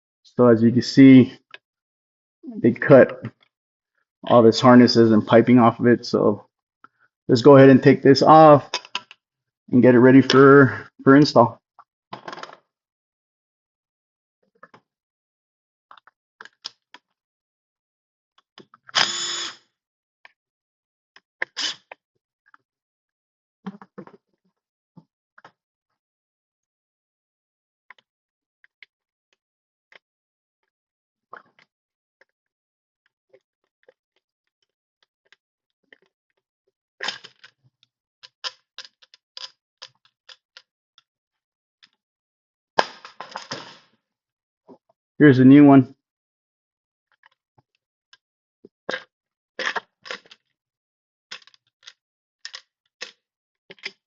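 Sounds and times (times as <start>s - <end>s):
power drill bursts: 19.0s - 19.6s.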